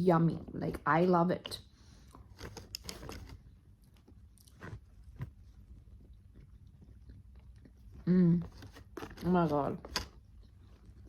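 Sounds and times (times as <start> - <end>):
person chewing food: 3.6 - 8.1.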